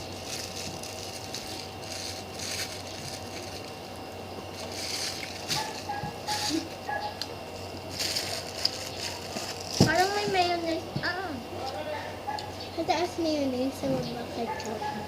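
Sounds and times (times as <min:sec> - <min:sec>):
hamburger rustling and crunching: 0:00.0 - 0:10.6
steady background hum: 0:00.0 - 0:15.0.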